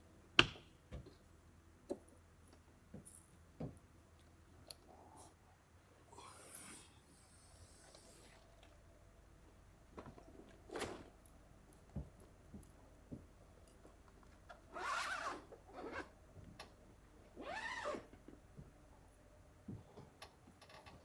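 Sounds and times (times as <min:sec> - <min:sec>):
zipper pulled: 0:14.7 - 0:16.1, 0:17.4 - 0:18.1.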